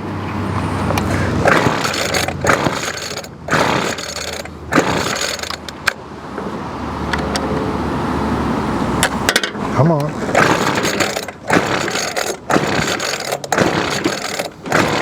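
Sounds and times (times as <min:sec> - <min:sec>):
string-trimmer engine running rough: 0:00.9 - 0:05.7, 0:10.2 - 0:15.0.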